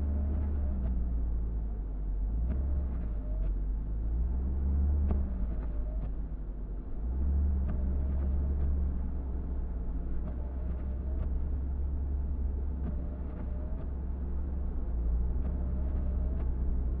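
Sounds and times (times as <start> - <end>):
car engine and road rumble: 0.0 - 17.0
faint clicks with squeak: 2.5 - 3.7, 12.8 - 14.1.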